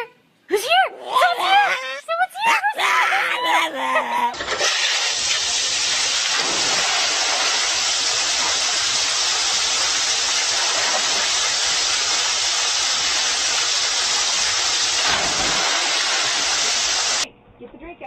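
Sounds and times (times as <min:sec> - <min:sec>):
loud steady hissing: 0:04.4 - 0:17.3.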